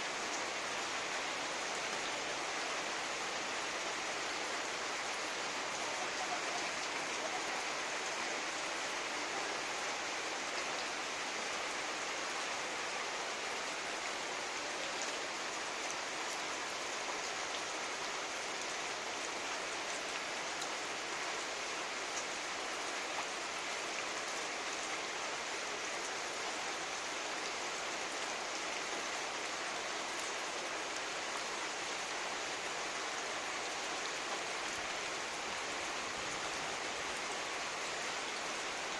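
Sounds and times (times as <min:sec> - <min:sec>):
pouring rain: 0:00.0 - 0:38.9.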